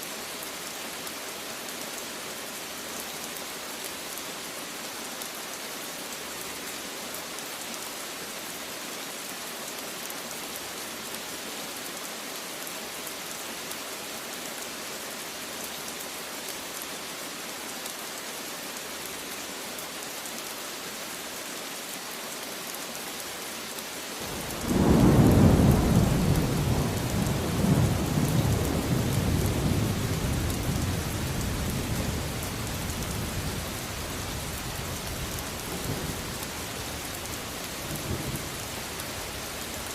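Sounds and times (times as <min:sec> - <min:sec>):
heavy rain hissing: 0:23.2 - 0:39.9.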